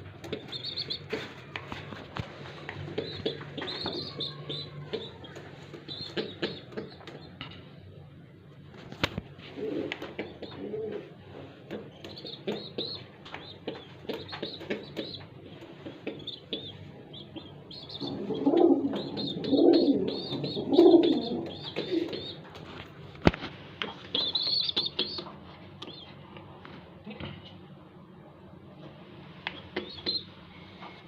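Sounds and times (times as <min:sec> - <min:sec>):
pigeons cooing: 0:09.5 - 0:15.2, 0:17.3 - 0:22.4
high chirps and squeaks: 0:24.1 - 0:25.3.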